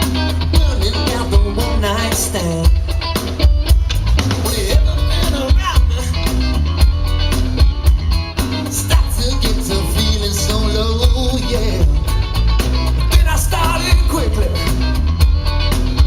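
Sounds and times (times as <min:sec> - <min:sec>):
live rock band playing: 0:00.0 - 0:16.0
person singing: 0:00.4 - 0:02.9, 0:04.2 - 0:06.5, 0:08.7 - 0:12.4, 0:13.0 - 0:14.9.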